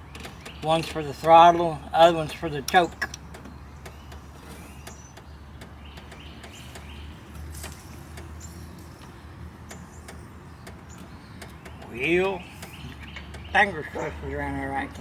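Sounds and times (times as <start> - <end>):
light clicks and taps of hands: 0.1 - 8.3.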